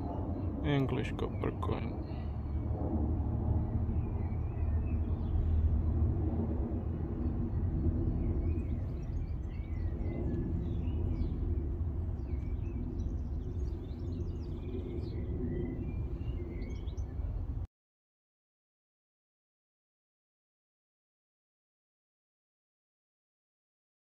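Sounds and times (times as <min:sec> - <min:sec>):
low background rumble: 0:00.0 - 0:17.7
small birds chirping: 0:03.6 - 0:06.2, 0:06.8 - 0:17.6.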